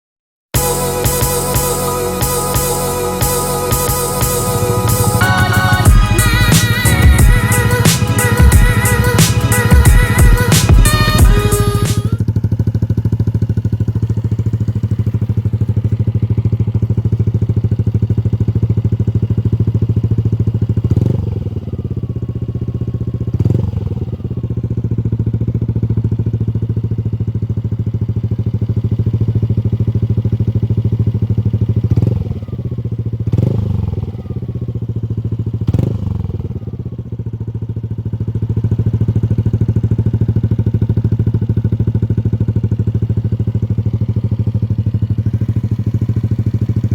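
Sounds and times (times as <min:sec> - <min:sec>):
throttle revs: 0:00.6 - 0:13.8, 0:23.3 - 0:24.2, 0:33.2 - 0:34.5, 0:35.6 - 0:36.7
scooter engine idling: 0:00.6 - 0:46.9.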